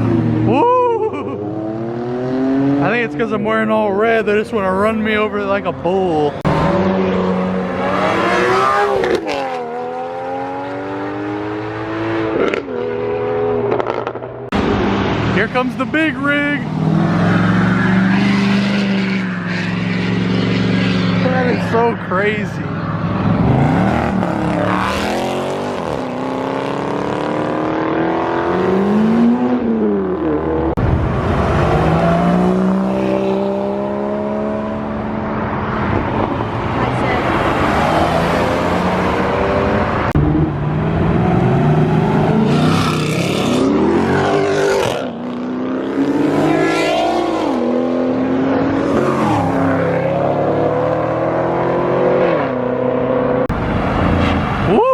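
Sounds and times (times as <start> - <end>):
car engine accelerating: 0.0 - 54.7.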